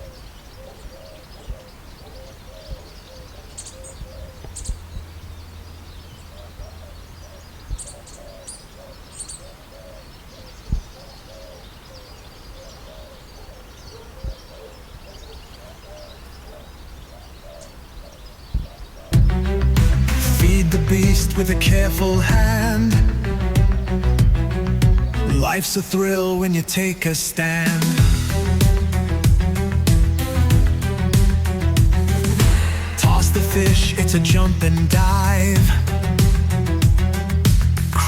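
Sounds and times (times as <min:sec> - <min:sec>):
bird cooing hoots: 0:00.0 - 0:04.8, 0:06.2 - 0:19.2
bird high chirps: 0:00.0 - 0:37.3.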